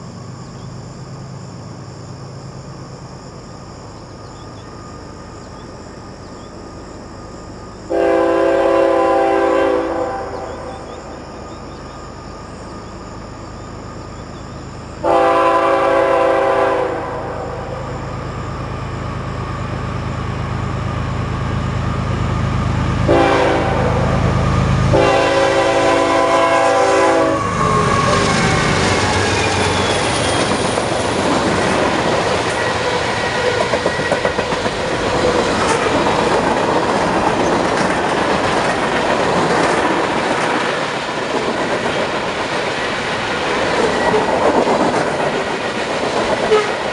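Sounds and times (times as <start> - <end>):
locomotive engine rumble: 0.0 - 46.9
locomotive horn blasts: 7.9 - 10.7, 15.0 - 17.6, 23.0 - 28.4, 46.5 - 46.8
train wheels clattering on rails: 27.4 - 46.9.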